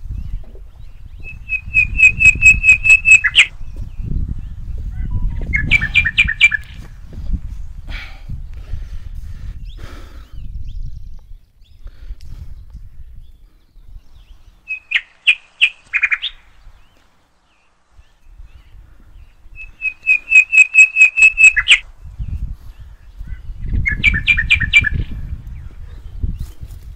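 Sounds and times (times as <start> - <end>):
bird chirping rapidly: 0.1 - 6.8, 13.2 - 26.4.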